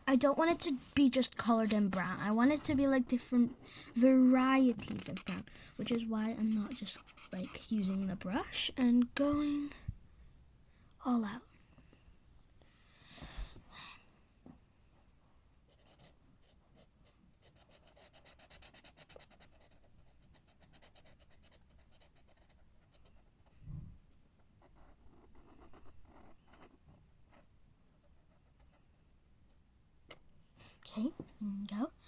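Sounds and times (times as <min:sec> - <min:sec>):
crayon scratching on paper: 0:00.1 - 0:08.7, 0:15.7 - 0:16.6, 0:17.4 - 0:23.5, 0:24.6 - 0:28.8.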